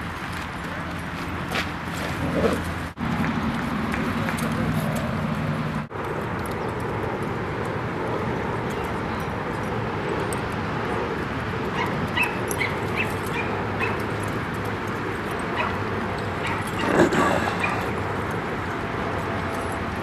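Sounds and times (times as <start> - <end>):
dogs yipping: 11.6 - 14.4, 15.3 - 18.0.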